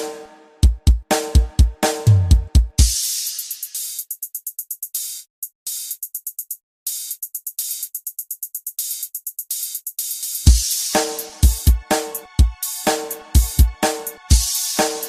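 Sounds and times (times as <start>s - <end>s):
drum machine hi-hat ticks: 0.0s - 15.0s
deep kick drum: 0.6s - 2.9s, 10.5s - 10.7s, 11.4s - 12.6s.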